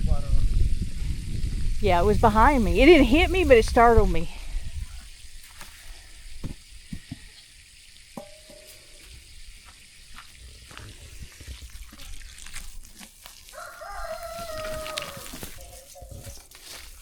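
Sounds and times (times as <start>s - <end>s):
water running from a hose: 1.9s - 17.0s
rooster crowing: 13.5s - 15.6s.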